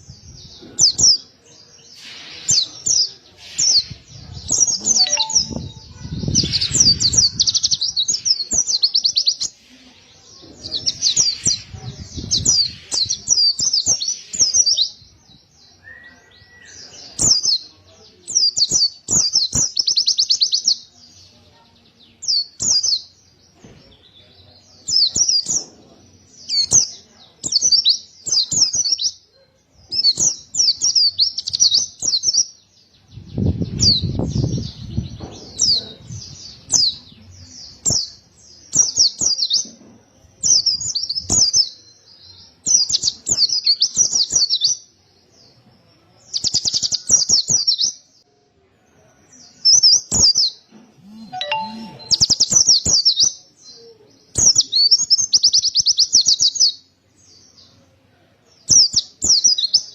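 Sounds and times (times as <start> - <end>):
bird twittering song: 0.0 - 9.6, 10.2 - 39.8, 49.4 - 57.8.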